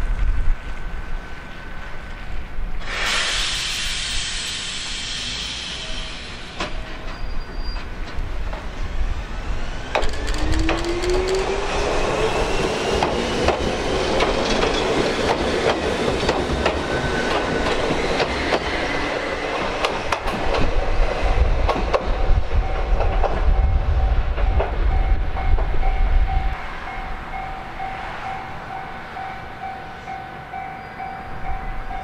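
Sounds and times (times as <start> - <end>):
electric train motor whine: 8.7 - 14.0
wheels clicking over rail joints: 9.9 - 11.7.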